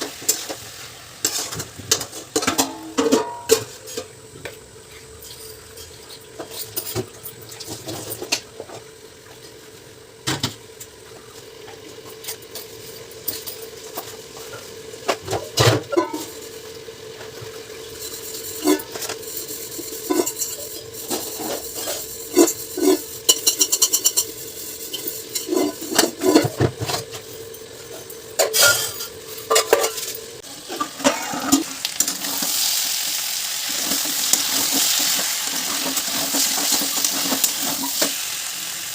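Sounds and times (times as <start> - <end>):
food sizzling in a pan: 0.0 - 38.9
spoon scraping metal pots: 17.9 - 32.5, 33.7 - 38.2.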